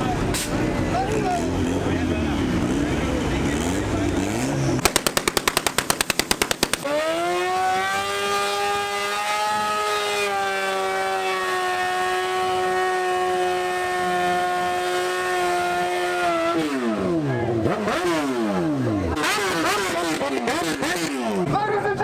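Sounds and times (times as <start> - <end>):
car engine revving: 5.5 - 21.5.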